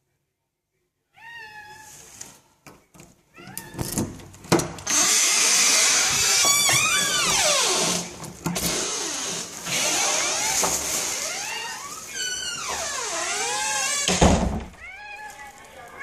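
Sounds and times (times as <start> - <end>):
cat meowing: 1.1 - 2.0, 3.3 - 4.0, 10.0 - 14.1, 14.8 - 16.0.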